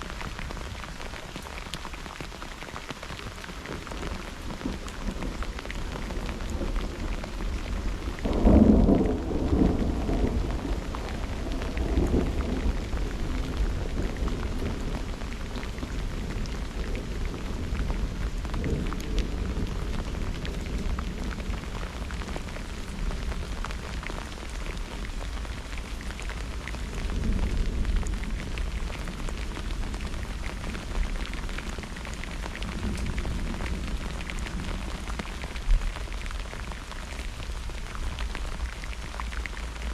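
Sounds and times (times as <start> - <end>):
steady rain falling: 0.0 - 39.9
thunder rumbling: 4.6 - 24.1.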